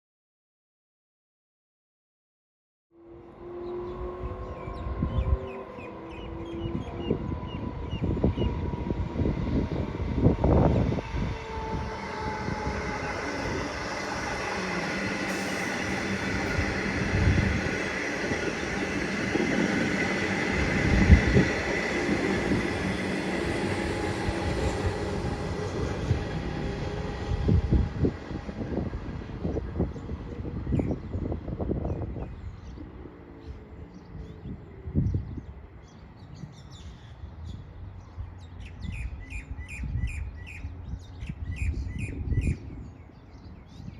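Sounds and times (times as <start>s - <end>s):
train wheels rushing on rail: 3.7s - 32.4s.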